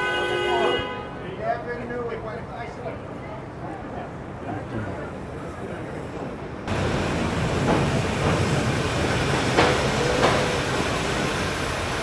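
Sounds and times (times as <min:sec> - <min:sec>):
subway train rumbling: 0:00.0 - 0:12.0
wheels clicking over rail joints: 0:06.7 - 0:11.0.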